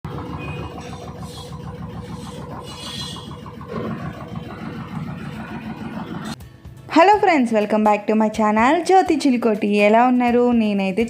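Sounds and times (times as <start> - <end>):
washing machine spinning: 0.0 - 6.4.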